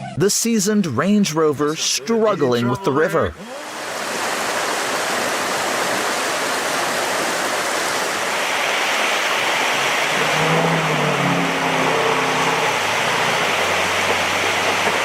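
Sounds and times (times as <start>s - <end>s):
river water rushing: 3.4s - 15.0s
vehicle engine: 9.3s - 15.0s.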